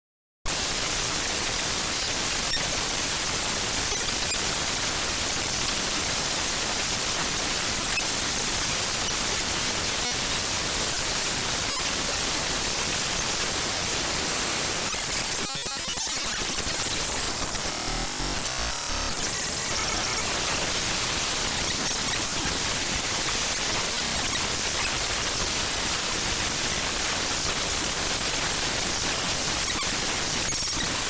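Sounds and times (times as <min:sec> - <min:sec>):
static hiss: 0:09.8 - 0:24.7.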